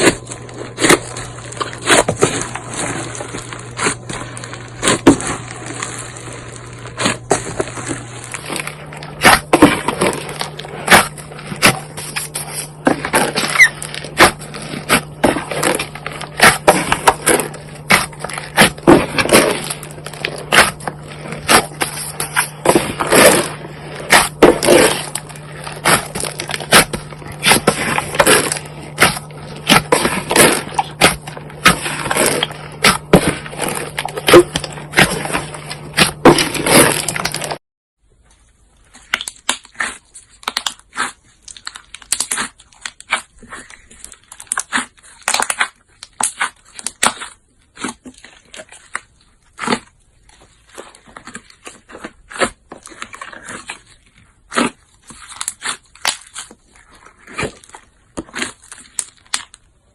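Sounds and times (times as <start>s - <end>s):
slime crackling and popping: 0.0s - 37.6s, 38.8s - 59.9s
steady low hum: 0.0s - 37.6s.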